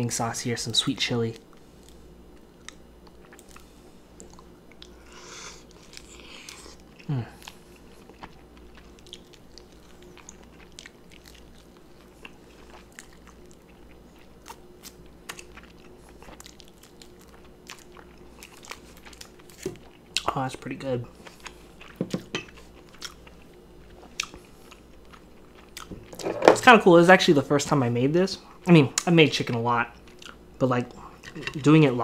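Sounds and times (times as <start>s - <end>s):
biting and chewing chicken: 1.8s - 20.3s.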